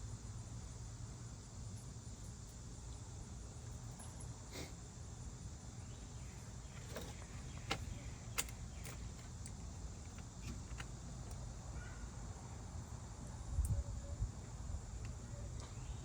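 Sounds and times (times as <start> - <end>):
faint insect hum: 0.0 - 16.0.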